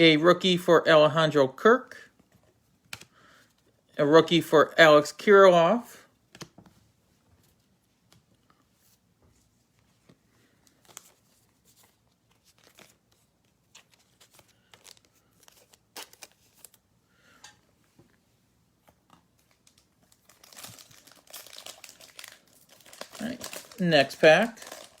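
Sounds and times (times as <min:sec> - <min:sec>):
cards clicking and rustling: 0:02.3 - 0:03.1, 0:06.3 - 0:06.8, 0:09.9 - 0:16.8, 0:18.8 - 0:25.0
wrapper crinkling and tearing: 0:10.7 - 0:16.8, 0:19.4 - 0:25.0.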